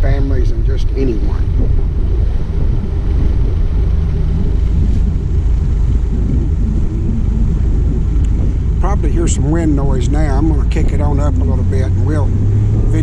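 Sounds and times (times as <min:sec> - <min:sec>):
motorboat engine running: 0:00.0 - 0:13.0
wind rumbling on microphone: 0:00.0 - 0:13.0.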